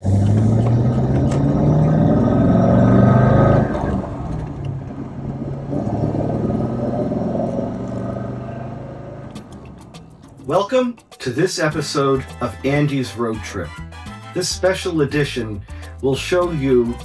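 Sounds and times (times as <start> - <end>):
car engine revving: 0.0 - 10.7.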